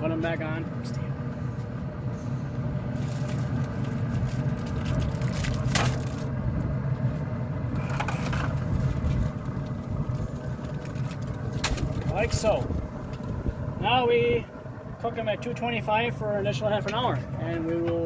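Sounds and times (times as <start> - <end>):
low mechanical hum: 0.0 - 18.0
foil packets set on grill grate: 2.8 - 13.7
foil crinkling: 3.0 - 6.3, 7.8 - 12.3.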